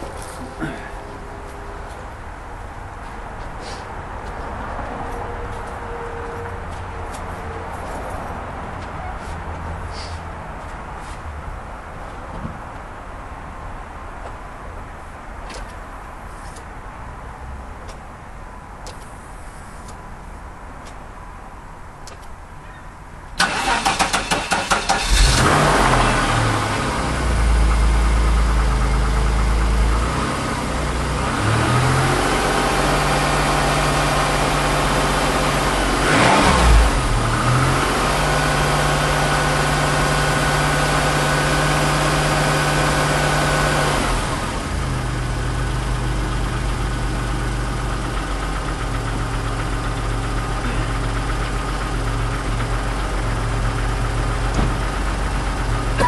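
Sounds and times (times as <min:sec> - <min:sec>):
starter cranking engine: 0:23.4 - 0:25.4
car engine idling: 0:23.4 - 0:31.4, 0:37.9 - 0:56.0
engine revving: 0:23.4 - 0:44.8.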